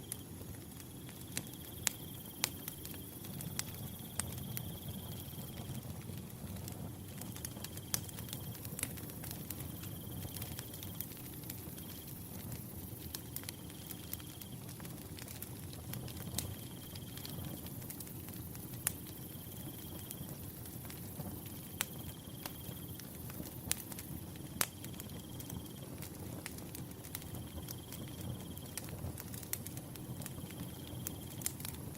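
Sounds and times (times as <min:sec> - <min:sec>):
wood fire crackling: 0:00.0 - 0:31.9.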